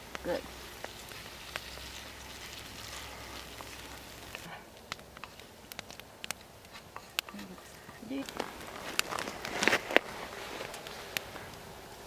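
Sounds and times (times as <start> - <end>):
food sizzling in a pan: 0.0 - 4.5
campfire crackling: 0.0 - 12.0.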